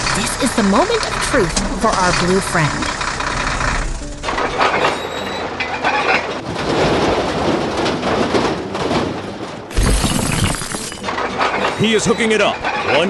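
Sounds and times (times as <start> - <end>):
deep rumble: 0.0 - 4.8
cartoon heavy vehicle rumble: 0.0 - 11.6.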